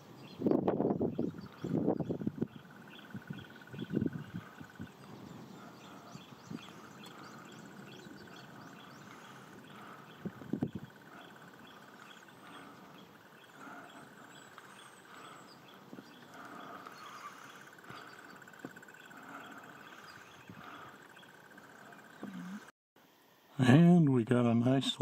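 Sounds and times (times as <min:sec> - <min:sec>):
animal chorus trilling: 0:01.2 - 0:22.7.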